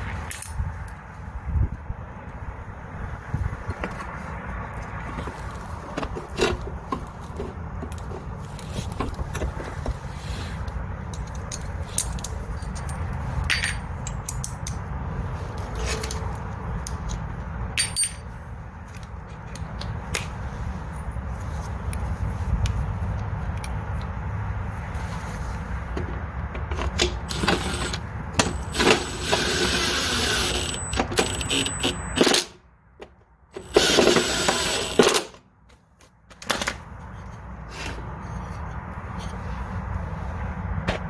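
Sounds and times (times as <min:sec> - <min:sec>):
hand tools clinking: 0:11.2 - 0:14.5.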